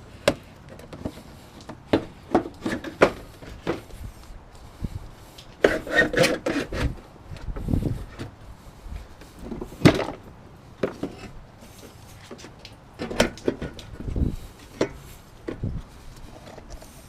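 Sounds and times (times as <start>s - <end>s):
knocks and clunks: 9.4s - 10.2s.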